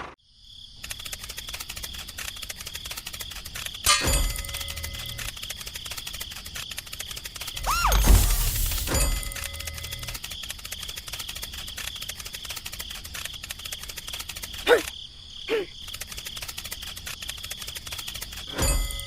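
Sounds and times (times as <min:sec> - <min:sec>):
insects trilling: 0:05.3 - 0:09.4, 0:10.2 - 0:18.5.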